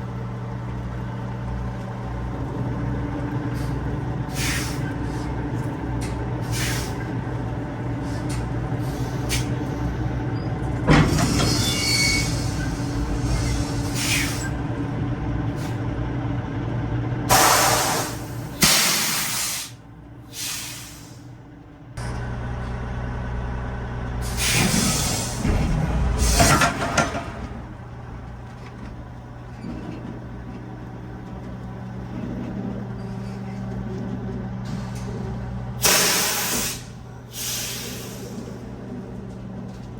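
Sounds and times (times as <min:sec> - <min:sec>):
diesel truck engine running: 0:00.0 - 0:39.9
air brake hisses: 0:04.3 - 0:04.9, 0:06.4 - 0:07.0, 0:08.0 - 0:09.5, 0:11.1 - 0:14.6, 0:17.3 - 0:21.3, 0:24.2 - 0:25.6, 0:35.8 - 0:38.6.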